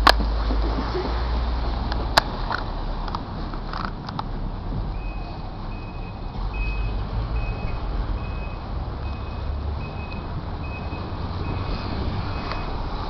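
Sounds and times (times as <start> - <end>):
truck reversing alarm beeping: 4.9 - 12.8.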